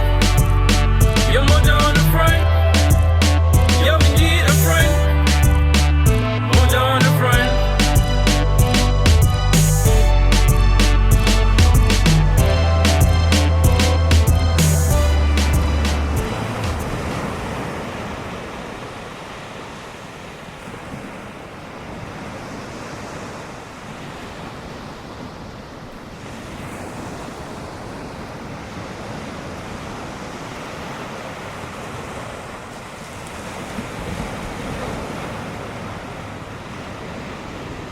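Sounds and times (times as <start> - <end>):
waves breaking: 0.0 - 37.9
wind: 0.0 - 37.9.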